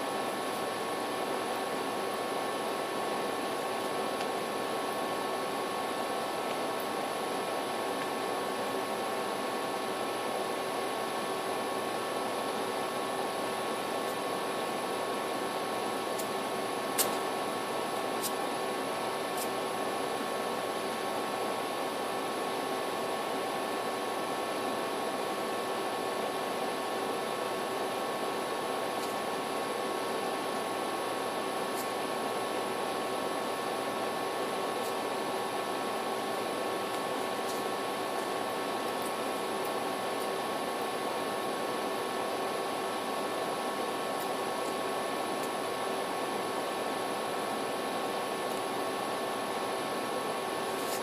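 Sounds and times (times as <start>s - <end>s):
faint hum tones: 0.0s - 51.0s.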